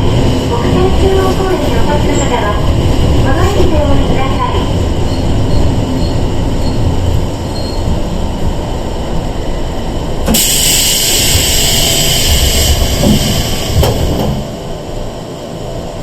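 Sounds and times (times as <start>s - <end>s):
train low rumble: 0.0s - 16.0s
loud hissing rush: 10.3s - 14.3s.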